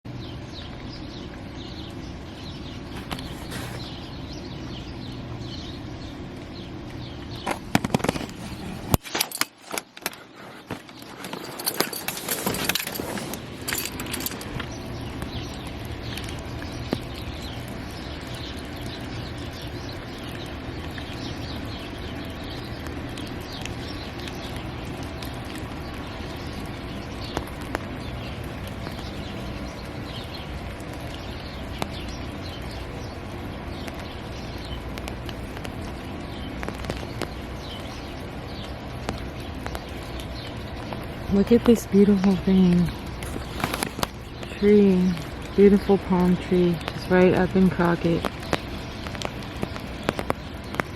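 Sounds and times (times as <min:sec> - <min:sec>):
small birds chirping: 0:00.1 - 0:09.4, 0:10.1 - 0:50.9
knocks and rustling: 0:07.5 - 0:14.7.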